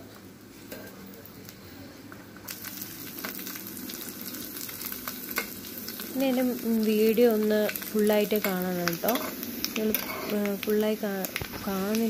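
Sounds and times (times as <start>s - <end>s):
coconut sizzling in hot fat: 0.0s - 12.0s
spoon scraping metal pan: 8.4s - 10.5s.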